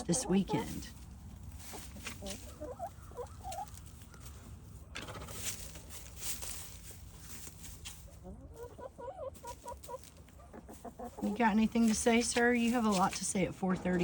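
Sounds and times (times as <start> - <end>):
chickens clucking: 0.0 - 14.0
rustling: 0.1 - 8.7, 9.3 - 13.5.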